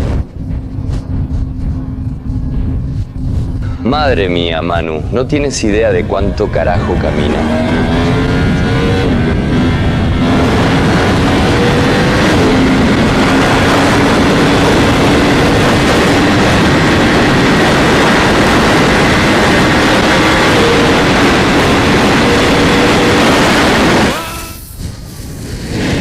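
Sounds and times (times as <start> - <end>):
motorcycle engine cruising: 0.0 - 24.3
wind rush on microphone: 0.0 - 26.0.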